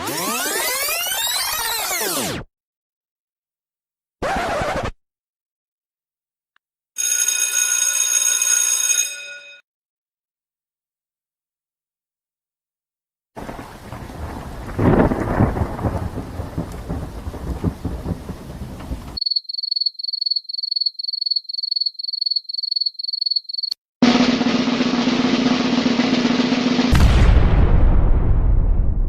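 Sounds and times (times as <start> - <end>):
rain: 13.4 - 19.2
thunderclap: 13.4 - 19.2, 26.8 - 29.0.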